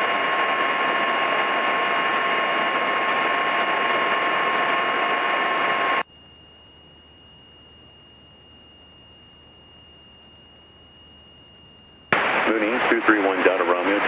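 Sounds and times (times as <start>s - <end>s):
radio hiss: 0.0s - 6.0s, 12.1s - 14.0s
thin high whine: 0.0s - 14.0s
thin steady tones: 0.0s - 14.0s.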